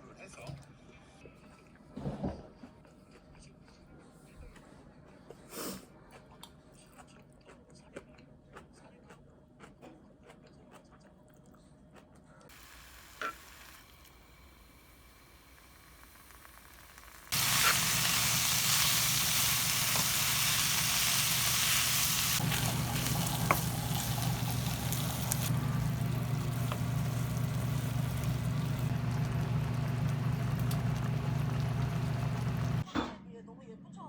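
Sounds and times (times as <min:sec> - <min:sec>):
food sizzling in a hot pan: 0:12.5 - 0:32.8
steady low hum: 0:17.0 - 0:32.8.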